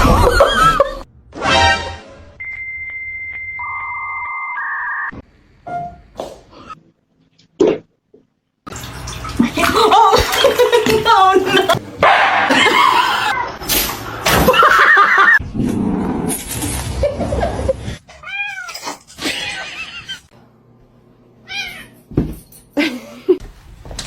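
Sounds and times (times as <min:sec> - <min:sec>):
cats meowing and yowling: 0:18.1 - 0:20.2, 0:21.5 - 0:22.0.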